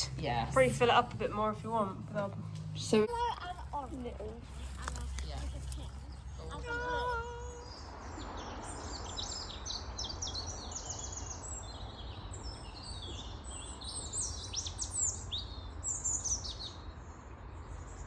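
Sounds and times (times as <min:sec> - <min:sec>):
low rumble: 0:00.0 - 0:09.2
small birds chirping: 0:00.0 - 0:17.1.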